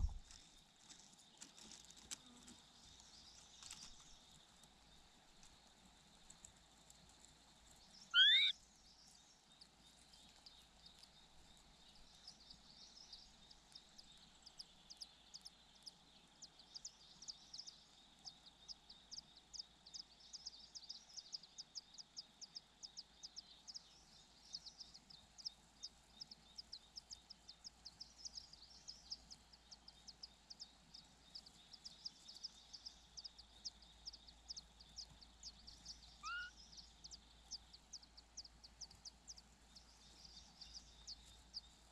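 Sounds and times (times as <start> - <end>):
rapid high-pitched bird chirps: 8.1 - 8.6, 35.8 - 37.0
rising bird call: 8.2 - 8.6, 36.2 - 36.6.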